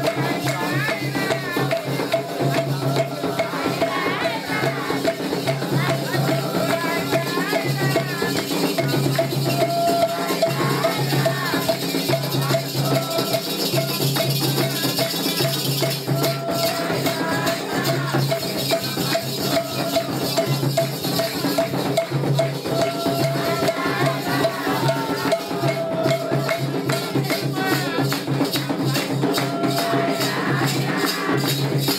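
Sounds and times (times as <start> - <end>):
drums: 0.0 - 31.9
people singing: 0.0 - 31.9
shaker rattle: 0.0 - 31.9
metal bell struck: 17.8 - 27.5.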